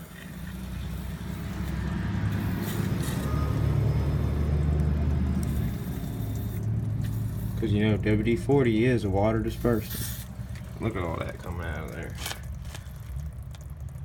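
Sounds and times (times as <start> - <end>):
aerosol spray hissing: 0.3 - 3.3, 5.4 - 7.7, 9.6 - 10.5.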